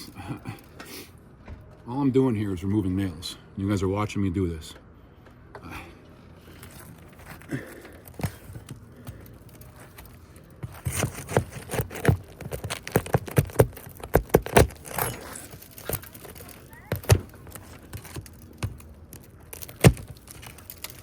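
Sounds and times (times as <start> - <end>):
scraping and crackling shingles: 5.7 - 21.0
sharp clicks and knocks: 8.0 - 21.0.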